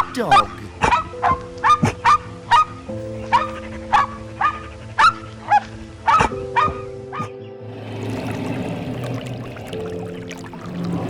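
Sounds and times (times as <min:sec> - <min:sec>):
background music: 0:00.0 - 0:11.0
dog barking: 0:00.8 - 0:02.7, 0:03.3 - 0:07.3
water pouring: 0:07.6 - 0:11.0.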